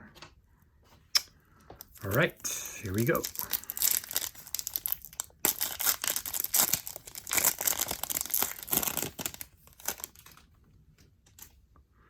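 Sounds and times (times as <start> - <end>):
wrapper tearing and crinkling: 1.8 - 10.5.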